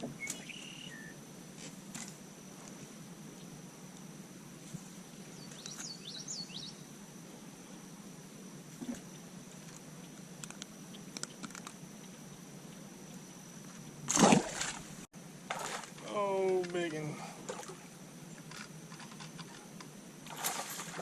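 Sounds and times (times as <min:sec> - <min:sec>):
bird chirping: 0:00.2 - 0:01.2, 0:05.2 - 0:06.8.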